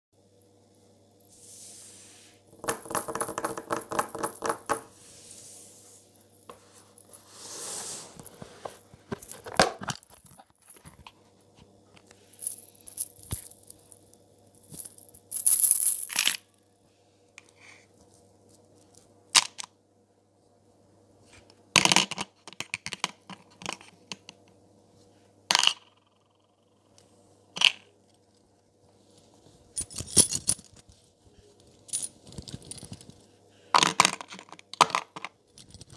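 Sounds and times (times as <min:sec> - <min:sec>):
rings clinking and jingling: 0:12.4 - 0:16.3.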